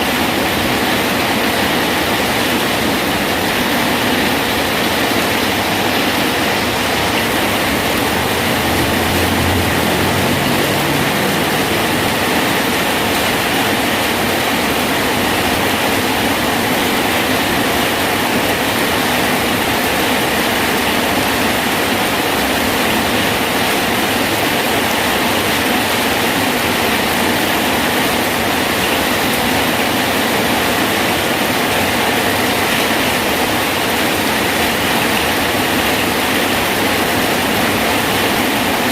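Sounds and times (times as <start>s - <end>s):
heavy rain hissing: 0.0s - 38.9s.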